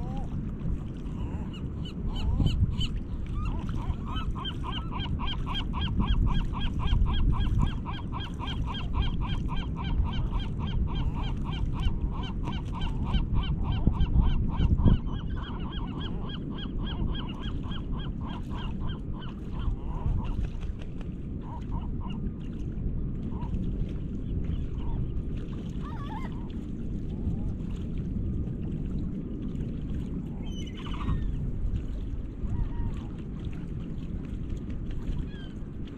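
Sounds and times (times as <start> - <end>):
steady low rumble: 0.0 - 35.9
gull calling rapidly: 1.5 - 7.2, 7.8 - 19.7, 25.8 - 26.4, 30.4 - 31.4.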